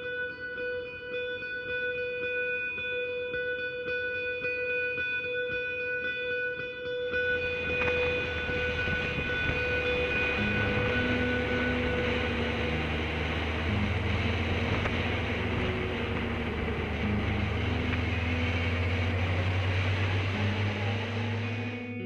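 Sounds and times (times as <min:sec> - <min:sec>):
motorcycle engine running: 0:07.2 - 0:22.0
wind and road noise: 0:07.3 - 0:22.0.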